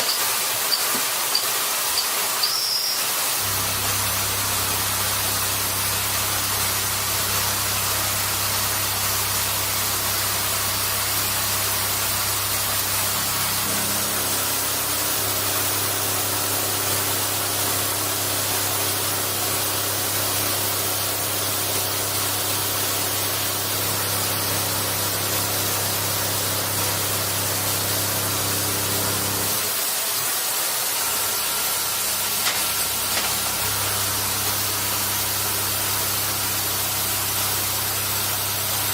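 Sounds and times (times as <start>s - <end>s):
cutting machine hissing: 0.0s - 38.9s
low machine hum: 3.4s - 17.1s.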